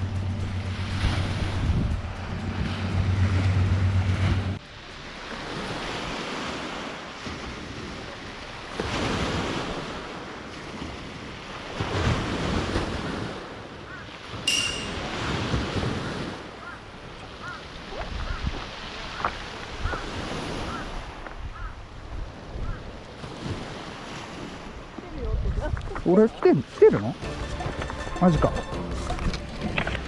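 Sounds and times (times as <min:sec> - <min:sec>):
steady low hum: 0:00.0 - 0:05.9
sea waves washing onto shore: 0:00.0 - 0:21.3
wind buffeting microphone: 0:24.4 - 0:26.0
brief high note: 0:27.2 - 0:30.0.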